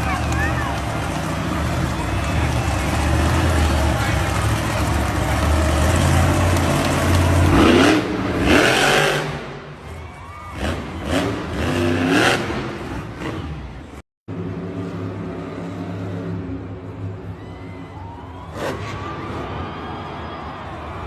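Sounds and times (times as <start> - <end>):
engine running steadily: 0.0 - 8.4
truck engines revving: 0.0 - 21.0.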